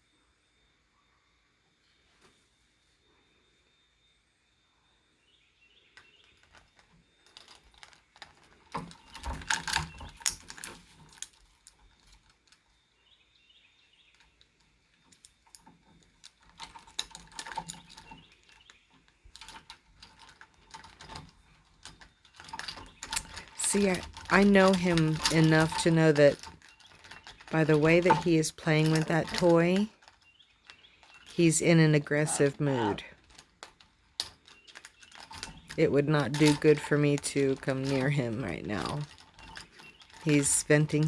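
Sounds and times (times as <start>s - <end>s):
bird rattling a toy: 15.1s - 41.0s.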